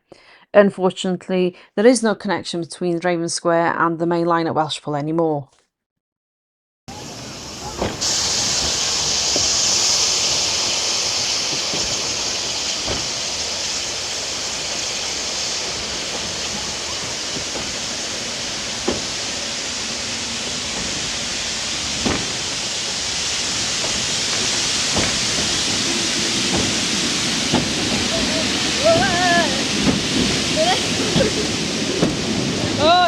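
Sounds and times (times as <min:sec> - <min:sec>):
train carriage running hiss: 0:06.9 - 0:33.0.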